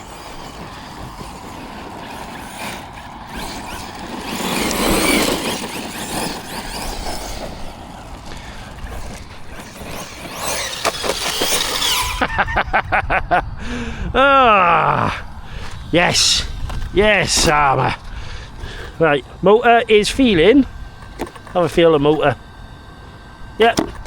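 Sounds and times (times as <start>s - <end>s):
short pulses: 0.0s - 12.5s
electric motor whining: 0.0s - 12.8s, 13.4s - 24.0s
tyres on loose ground: 0.0s - 24.0s.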